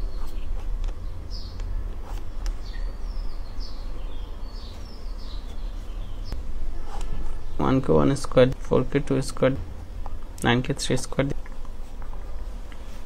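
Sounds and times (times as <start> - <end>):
small birds chirping: 0.0 - 8.3
steady low hum: 0.0 - 13.0.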